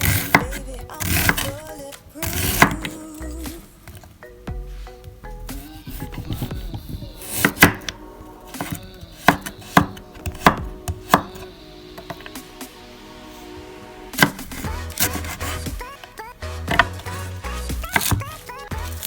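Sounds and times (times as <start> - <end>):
knife chopping on cutting board: 0.0 - 1.6, 2.2 - 3.0, 5.9 - 7.9, 8.6 - 11.4, 14.2 - 15.7, 17.8 - 18.4.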